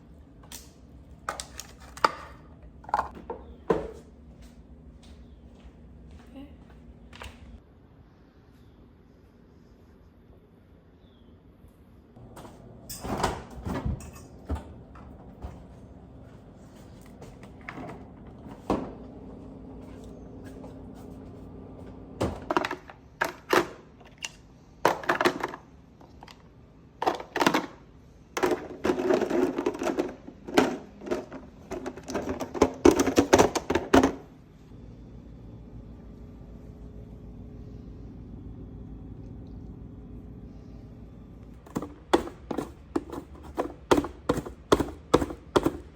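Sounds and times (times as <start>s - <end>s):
kitchen items being handled: 0.4s - 4.6s, 12.4s - 19.0s, 22.2s - 34.3s, 41.6s - 45.9s
steady low hum: 34.2s - 45.9s.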